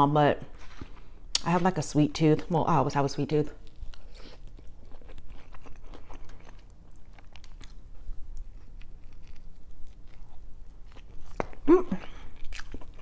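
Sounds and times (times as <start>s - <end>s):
chewing crunches: 3.6s - 13.0s.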